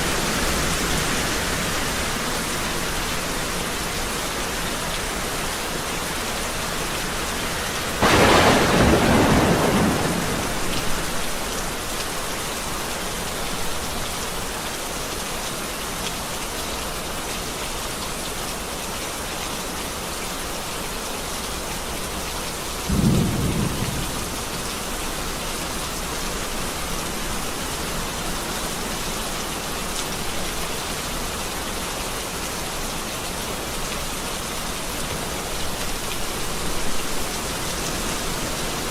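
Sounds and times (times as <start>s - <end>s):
steady rain falling: 0.0s - 38.9s
thunder rumbling: 8.0s - 11.6s, 22.9s - 24.7s.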